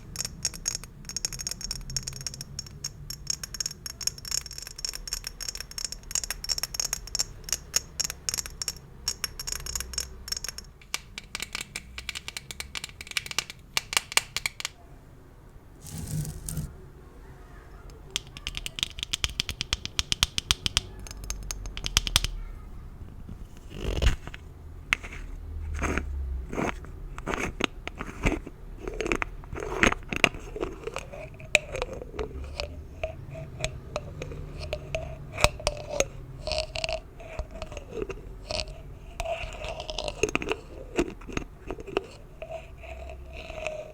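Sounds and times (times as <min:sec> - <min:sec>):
gift bows tapped and crinkled: 0:15.8 - 0:16.7.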